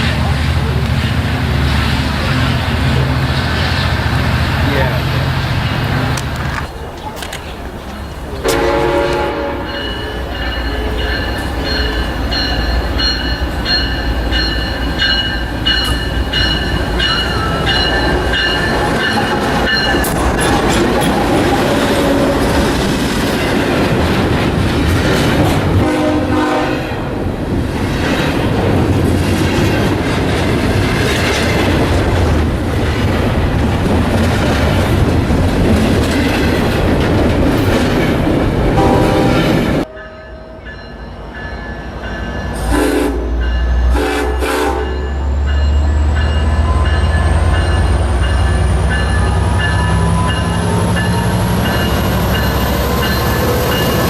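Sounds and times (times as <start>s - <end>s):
train wheels rumbling on rail: 0.0s - 54.0s
train horn: 8.4s - 10.0s, 21.7s - 22.6s, 25.8s - 27.1s, 38.8s - 39.5s, 42.6s - 45.2s.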